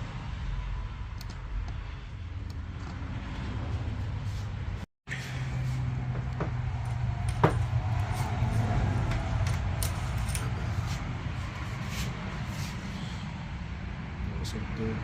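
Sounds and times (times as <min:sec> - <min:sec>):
light clicks of handled parts: 0:06.8 - 0:11.0.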